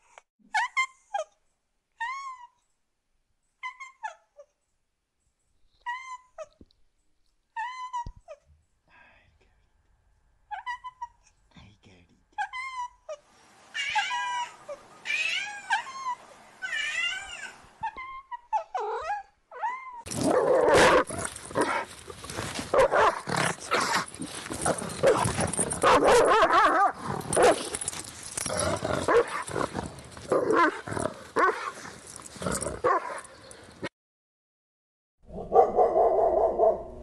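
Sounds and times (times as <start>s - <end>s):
cat meowing: 13.8s - 17.6s.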